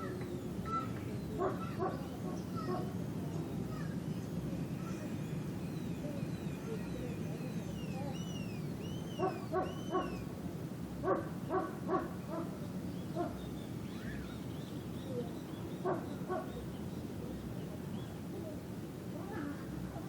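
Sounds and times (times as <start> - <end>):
distant dogs barking: 0.7 - 3.0, 9.1 - 10.4, 11.0 - 13.5, 15.8 - 16.7.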